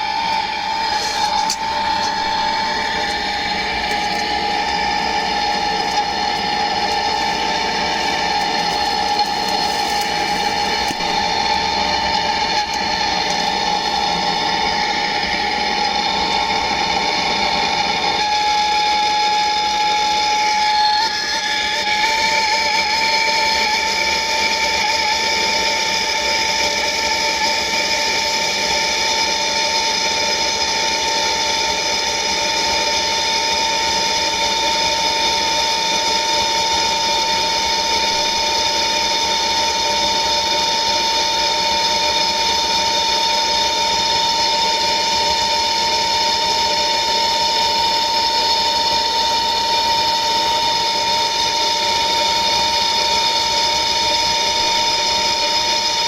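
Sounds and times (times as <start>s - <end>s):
blowtorch hissing and whistling: 0.0s - 56.0s.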